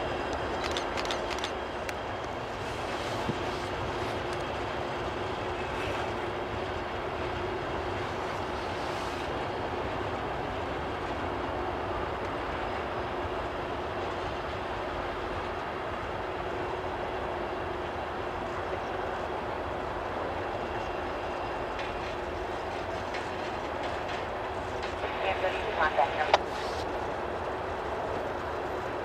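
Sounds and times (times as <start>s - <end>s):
freight train wheels rumbling on rail: 0.0s - 29.0s.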